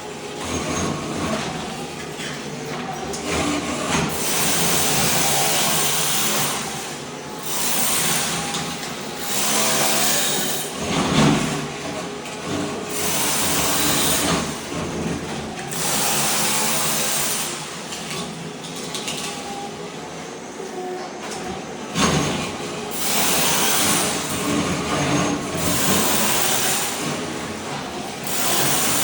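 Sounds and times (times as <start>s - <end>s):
floor scraper scraping mortar: 3.1s - 17.9s, 22.0s - 29.0s.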